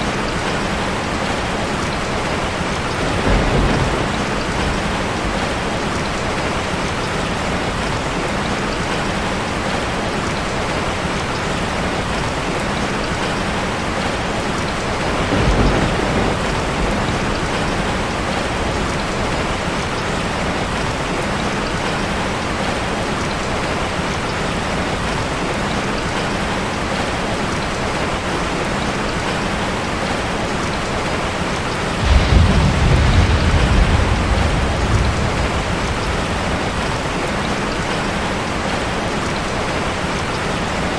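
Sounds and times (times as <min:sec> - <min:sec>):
rain drumming on a metal roof: 0:00.0 - 0:40.9
thunder rumbling: 0:00.2 - 0:06.8, 0:14.8 - 0:19.9, 0:31.9 - 0:38.8.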